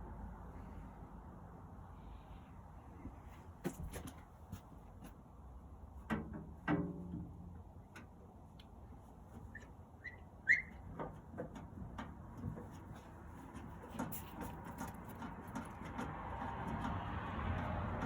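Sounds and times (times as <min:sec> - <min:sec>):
rustling scrape: 0:12.5 - 0:15.9.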